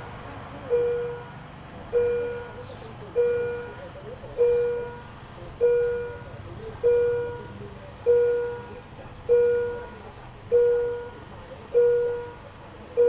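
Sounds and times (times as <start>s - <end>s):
level crossing bell ringing: 0.7s - 3.8s.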